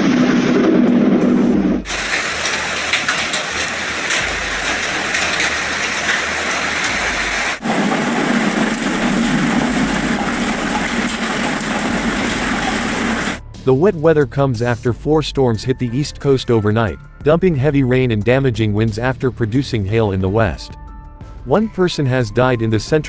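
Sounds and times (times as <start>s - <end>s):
heavy rain pelting down: 0.0s - 13.4s.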